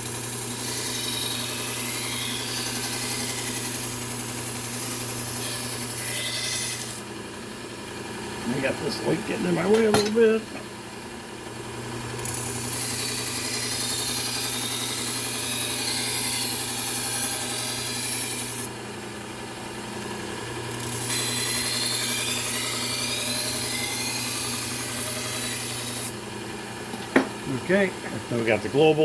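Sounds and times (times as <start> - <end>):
knife blade grinding on belt: 0.0 - 7.0, 20.9 - 26.1
belt sander humming: 0.0 - 11.0.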